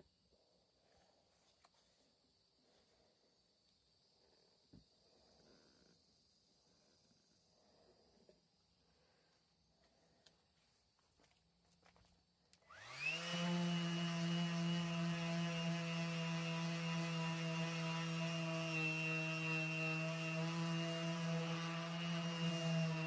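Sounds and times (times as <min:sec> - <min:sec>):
power tool motor whine: 0:12.7 - 0:23.0.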